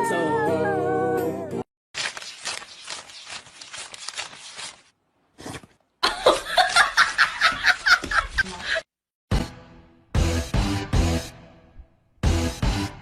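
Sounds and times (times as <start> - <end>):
music: 0.0 - 1.7, 9.3 - 13.0
person laughing in breathy bursts: 6.0 - 8.9.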